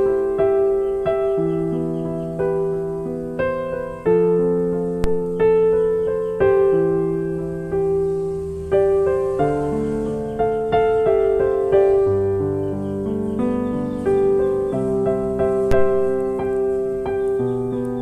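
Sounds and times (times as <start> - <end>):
slow soft piano music: 0.0 - 18.0.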